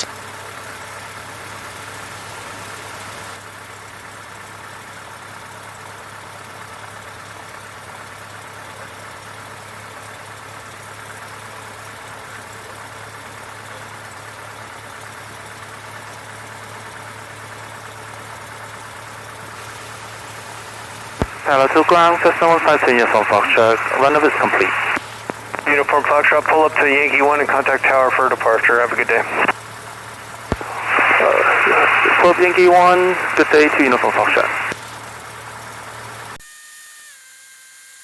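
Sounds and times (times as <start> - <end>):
aircraft engine idling: 0.0 - 3.4, 16.8 - 36.4.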